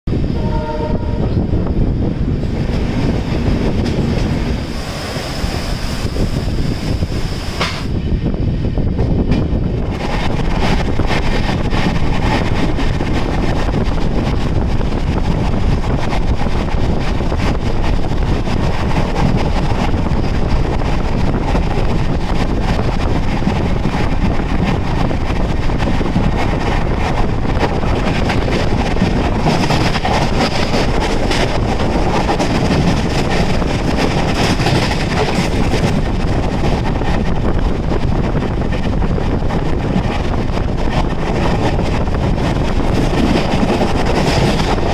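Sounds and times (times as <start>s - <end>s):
wind buffeting microphone: 0.0s - 44.9s
train wheels rushing on rails: 0.1s - 44.9s.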